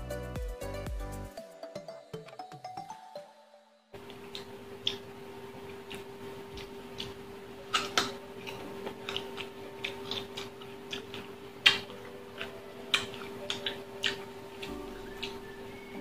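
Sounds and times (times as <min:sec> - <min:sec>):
crunchy chewing: 0:04.0 - 0:16.0.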